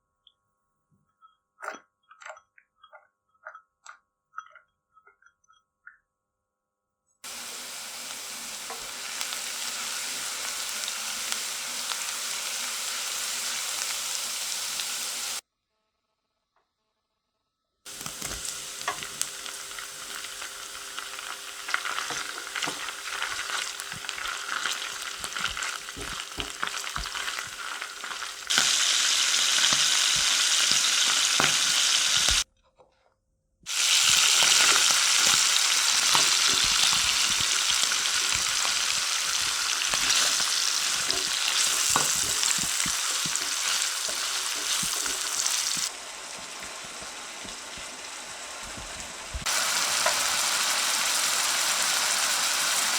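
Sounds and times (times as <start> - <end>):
food sizzling in frying pan: 7.2 - 15.4, 17.9 - 32.4, 33.7 - 52.9
utensil tapping and scraping: 17.9 - 19.3, 21.2 - 32.4, 34.0 - 50.2.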